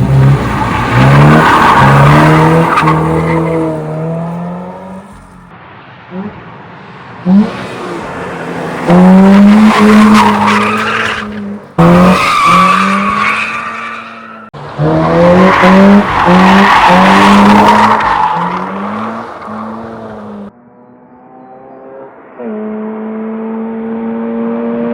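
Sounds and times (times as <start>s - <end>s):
car engine revving hard: 7.3s - 13.8s, 14.7s - 20.5s.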